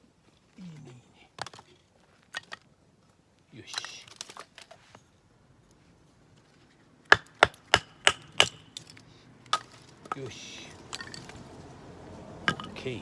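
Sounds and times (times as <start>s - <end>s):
hatchet striking wood: 7.0s - 8.9s, 12.5s - 12.9s.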